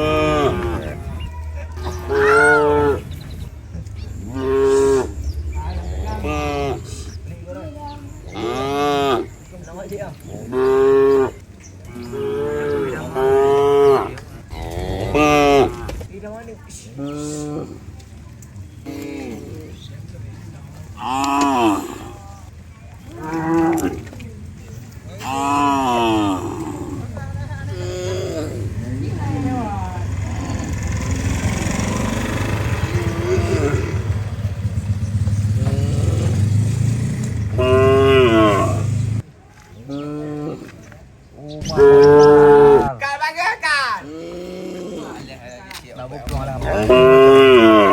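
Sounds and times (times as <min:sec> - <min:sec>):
cattle mooing: 0:00.0 - 0:07.3, 0:08.3 - 0:09.5, 0:10.3 - 0:16.1, 0:21.0 - 0:22.4, 0:23.1 - 0:24.2, 0:25.2 - 0:39.2, 0:41.6 - 0:43.0, 0:46.6 - 0:47.9
engine rumbling: 0:00.0 - 0:43.0, 0:44.0 - 0:47.9.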